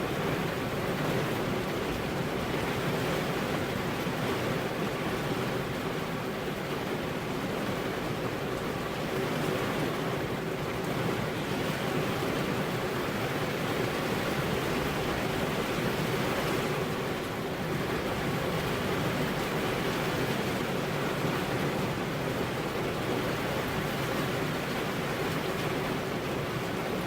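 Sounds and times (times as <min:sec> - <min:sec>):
rain on car windows: 0:00.0 - 0:27.0.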